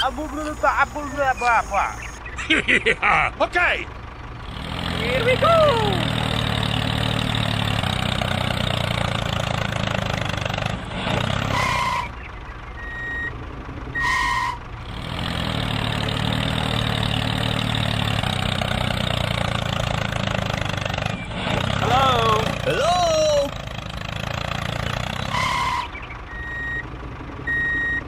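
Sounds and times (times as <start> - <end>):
tractor engine running: 0.0 - 28.0
short beeps: 12.8 - 13.3, 25.5 - 26.9, 27.5 - 28.0.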